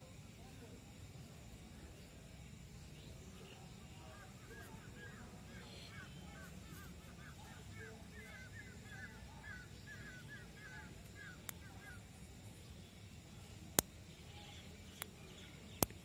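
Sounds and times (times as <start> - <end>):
bird calling: 3.4 - 12.2
sharp click: 15.8 - 16.0.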